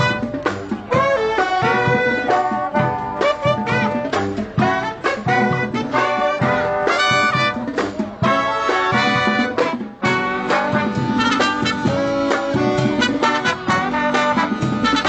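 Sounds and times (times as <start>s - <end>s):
brass band playing swing: 0.0s - 15.0s.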